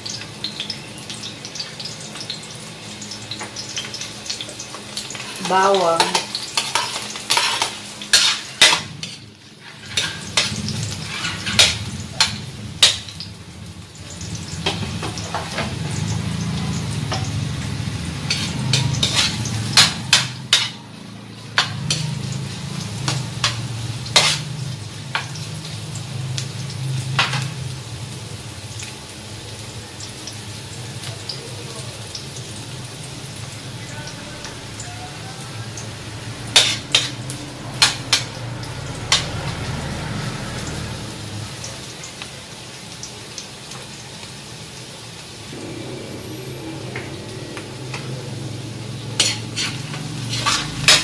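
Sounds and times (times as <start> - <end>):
onion and garlic sizzling in oil: 0.0 - 51.0
metal spatula scraping a wok: 6.0 - 13.1, 17.9 - 20.8, 21.6 - 22.2, 23.0 - 24.6, 36.5 - 38.3, 47.9 - 51.0.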